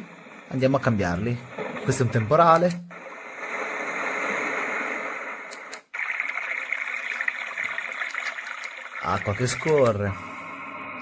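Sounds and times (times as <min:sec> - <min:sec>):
rain-like hiss from small speaker: 0:02.9 - 0:11.0.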